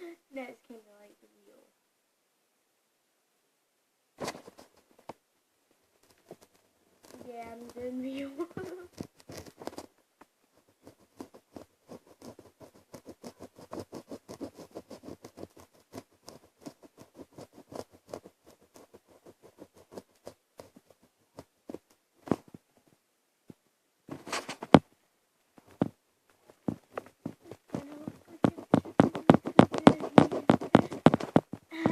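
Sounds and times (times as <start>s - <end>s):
paper rustle: 4.2s - 5.1s, 6.0s - 9.9s, 24.1s - 24.8s, 25.6s - 31.9s
pen scribbling on paper: 7.1s - 9.8s, 10.6s - 21.5s, 26.7s - 31.9s.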